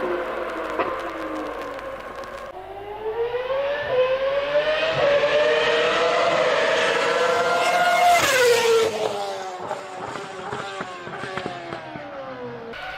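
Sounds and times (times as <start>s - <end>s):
racing car engine at high revs: 2.8s - 12.9s.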